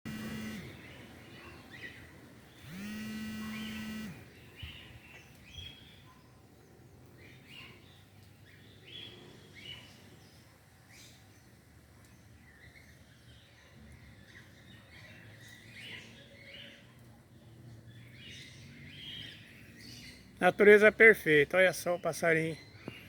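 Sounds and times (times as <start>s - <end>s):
long steady buzzing tone: 0.1s - 1.0s, 2.6s - 4.4s
birds chirping: 0.1s - 23.0s.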